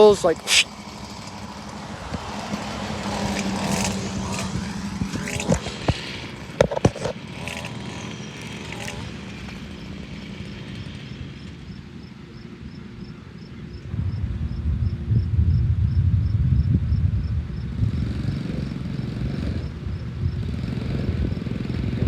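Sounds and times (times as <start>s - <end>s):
riding lawn mower running: 0.0s - 15.1s, 16.8s - 22.0s
knocks and scrapes on rough ground: 0.2s - 9.8s.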